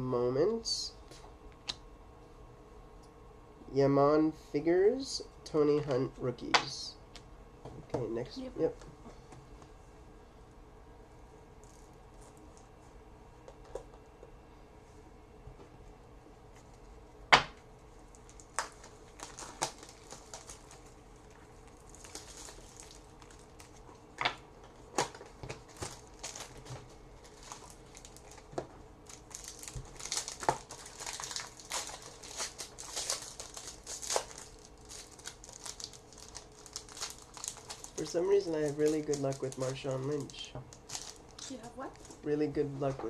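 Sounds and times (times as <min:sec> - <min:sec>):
wrapper crinkling and tearing: 0:18.1 - 0:42.3.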